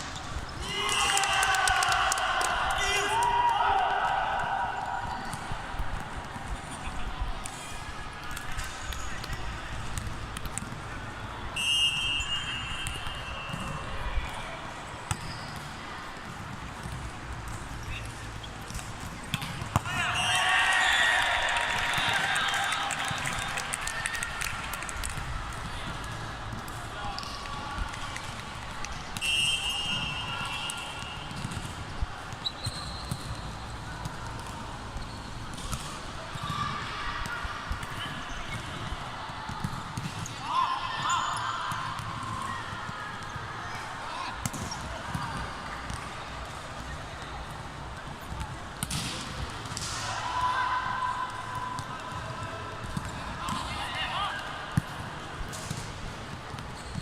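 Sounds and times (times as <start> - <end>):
players' voices: 0.1 - 32.5, 33.2 - 56.5
ball bouncing on hard court: 8.3 - 10.9, 15.0 - 20.0, 25.0 - 40.4, 44.4 - 46.2, 51.6 - 53.8.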